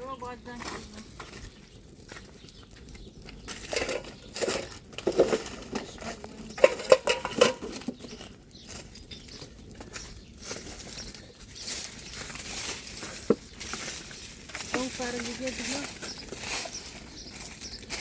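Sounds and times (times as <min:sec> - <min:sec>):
taps and knocks of objects: 0:13.0 - 0:16.4.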